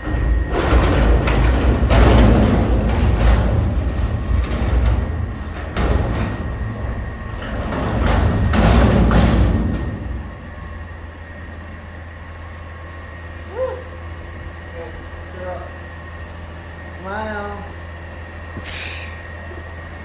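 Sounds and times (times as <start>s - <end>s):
clattering and banging: 0.0s - 11.0s
garbage truck engine rumble: 0.0s - 20.0s.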